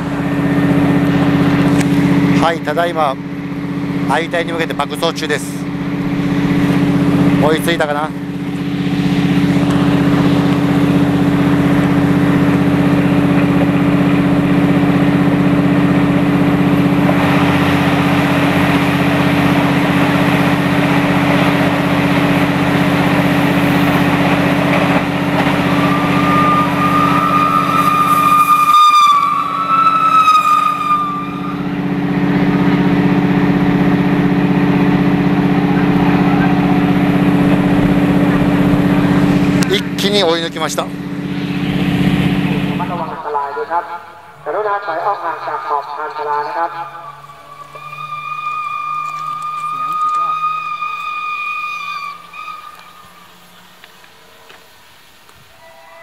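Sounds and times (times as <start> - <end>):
train rumbling at speed: 0.0 - 56.0
train whistle: 25.1 - 32.2, 46.7 - 53.3, 55.5 - 56.0.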